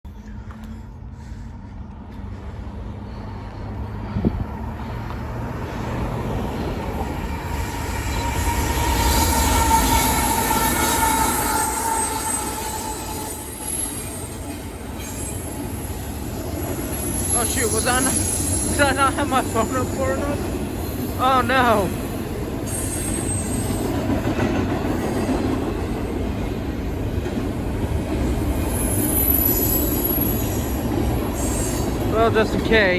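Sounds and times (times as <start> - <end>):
freight train rumbling past: 0.1 - 32.9
train wheels squealing: 7.1 - 21.8, 22.6 - 26.4, 28.3 - 32.3.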